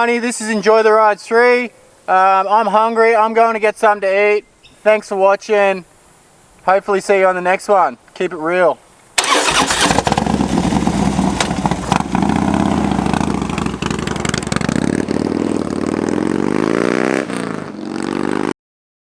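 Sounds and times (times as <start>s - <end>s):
motorcycle engine accelerating: 9.2s - 18.5s.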